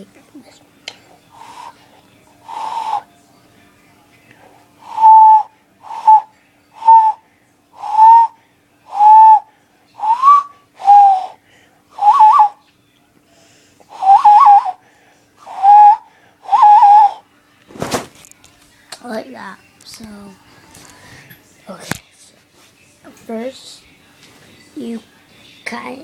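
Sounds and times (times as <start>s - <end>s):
hand-cupped owl call hoots: 2.5s - 3.1s, 4.8s - 7.2s, 7.8s - 11.4s, 12.0s - 12.6s, 13.9s - 14.8s, 15.4s - 17.2s.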